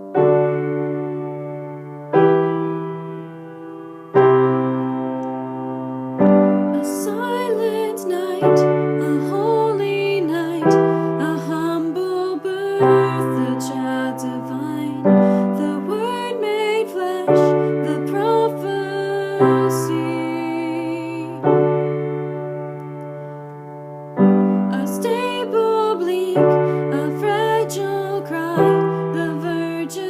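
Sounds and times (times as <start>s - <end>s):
slow piano chords: 0.0s - 30.0s
person singing: 6.5s - 21.8s, 24.4s - 30.0s.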